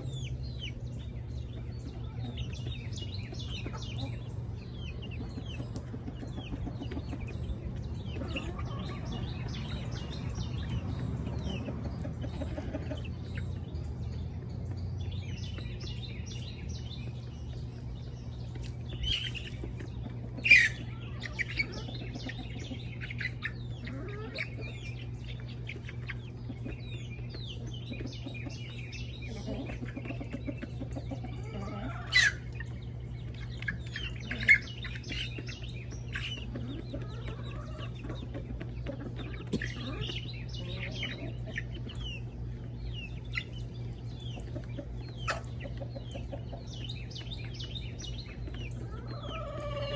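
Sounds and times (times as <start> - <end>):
chickens clucking: 0.0 - 49.9
steady low hum: 0.0 - 49.9
sharp bird calls: 14.8 - 49.9.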